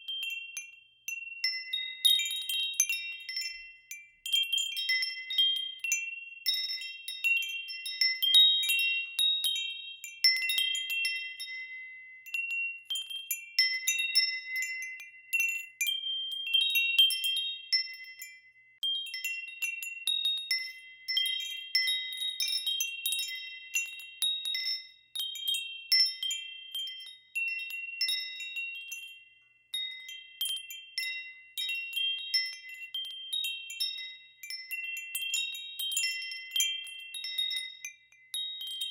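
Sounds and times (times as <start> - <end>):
wind chimes ringing: 0.0 - 38.9.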